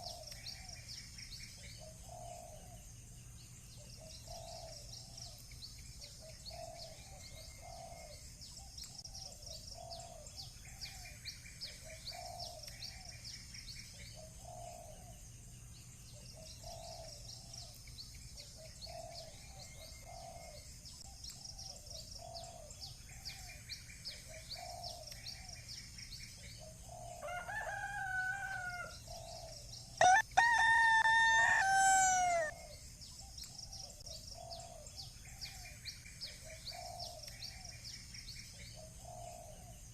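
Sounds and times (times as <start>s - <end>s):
small birds chirping: 0.0s - 39.9s
rooster crowing: 27.2s - 29.0s, 30.0s - 32.6s.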